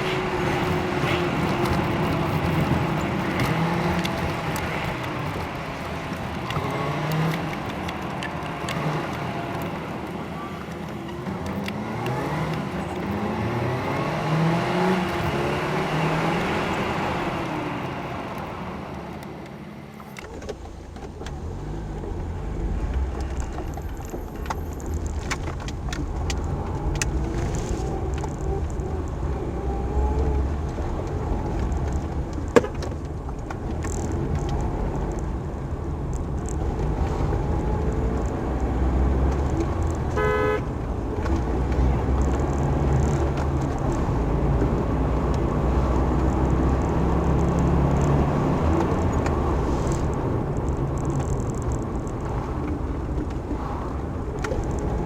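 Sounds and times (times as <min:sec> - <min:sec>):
vehicle engine rumbling: 0:00.0 - 0:55.0
short horn-like tone: 0:40.2 - 0:40.6.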